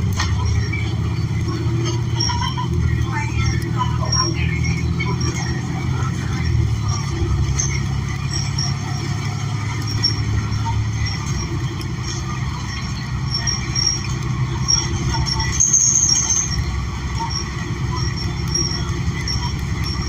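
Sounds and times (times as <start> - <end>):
bus engine running: 0.0 - 20.0
road noise: 0.0 - 20.0
small rattles: 7.4 - 20.0
short high squeal: 12.6 - 20.0.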